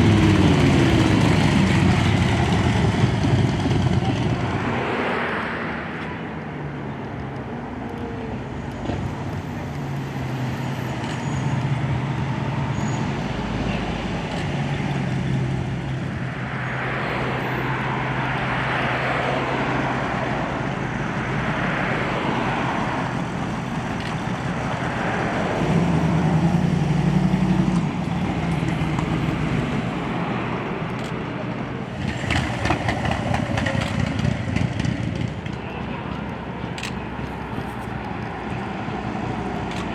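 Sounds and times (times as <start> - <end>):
car engines running at low speed: 0.0 - 8.0, 13.4 - 39.9
noisy rush: 0.0 - 9.7, 11.6 - 39.9.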